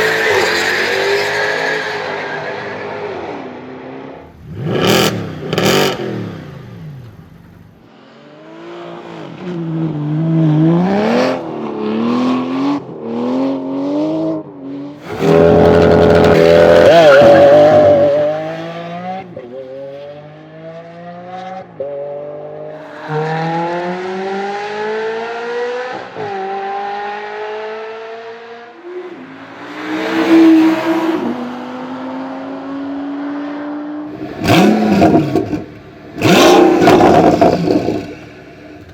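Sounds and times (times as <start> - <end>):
engine revving: 4.3 - 7.3, 15.0 - 21.6, 29.4 - 38.9
car accelerating through gears: 15.0 - 38.9
car passing by quickly: 28.8 - 34.0.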